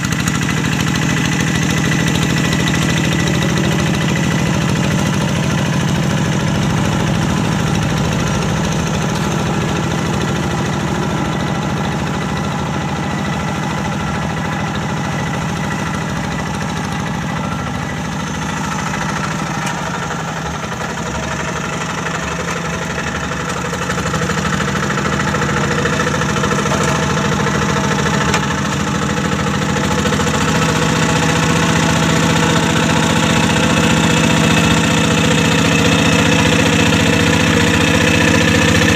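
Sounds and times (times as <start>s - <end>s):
diesel hand tractor engine running: 0.0s - 38.9s.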